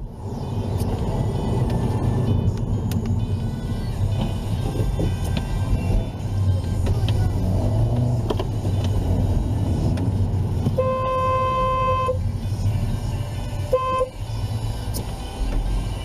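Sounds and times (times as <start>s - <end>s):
moving vehicle rumble: 0.0s - 16.0s
car horn honking: 10.7s - 12.2s, 13.6s - 14.2s.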